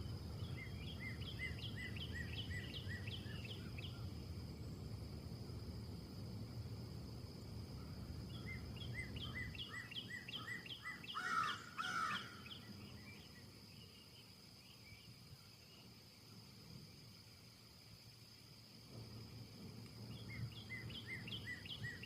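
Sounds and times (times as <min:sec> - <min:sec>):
low wind rumble: 0:00.0 - 0:22.0
bird chirping: 0:00.4 - 0:04.1, 0:20.1 - 0:22.0.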